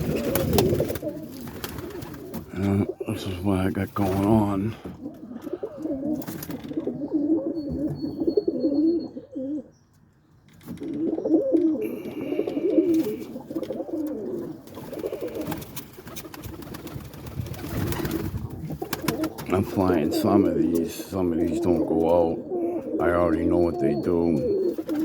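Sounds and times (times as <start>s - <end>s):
pigeons cooing: 0.0s - 9.8s, 10.7s - 25.0s.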